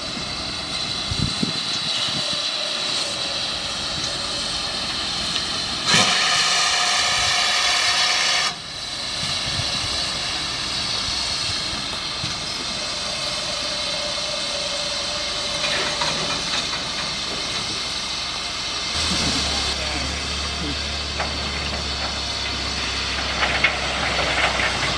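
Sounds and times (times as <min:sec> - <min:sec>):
steam locomotive hissing: 0:00.0 - 0:24.9
loud locomotive whistle blast: 0:05.8 - 0:08.7.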